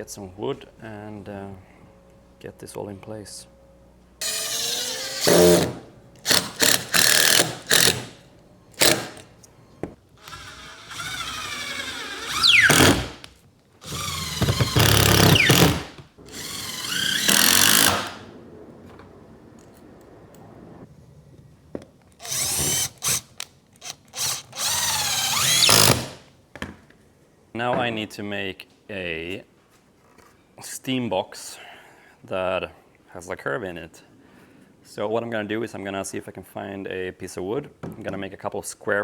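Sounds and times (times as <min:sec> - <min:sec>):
power drill driving screws: 0:04.2 - 0:08.2, 0:08.8 - 0:09.3, 0:10.2 - 0:18.3, 0:22.2 - 0:26.2.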